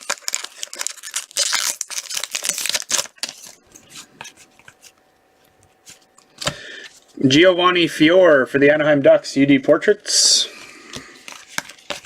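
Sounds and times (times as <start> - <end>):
foil wrapper crinkling: 0.0 - 4.8, 11.0 - 12.0
cards clicking and sliding: 10.9 - 12.0.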